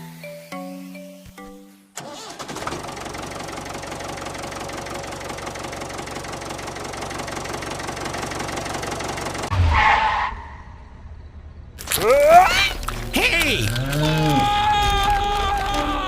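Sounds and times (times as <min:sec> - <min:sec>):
small engine running: 0:00.0 - 0:09.5.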